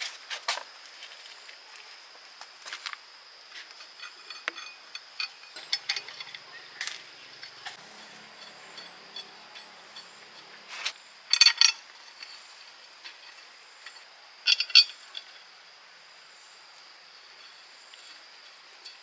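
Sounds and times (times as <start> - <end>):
metallic clinking and rattling: 3.8 - 15.4.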